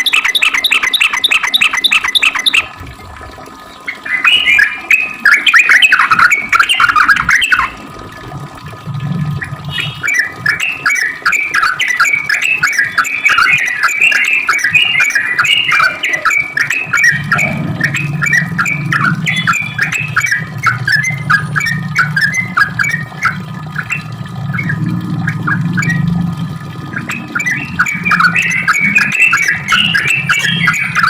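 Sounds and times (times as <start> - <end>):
bulbul chattering song: 0.0 - 2.8, 3.8 - 7.8, 9.4 - 31.0
low hum: 16.8 - 30.8.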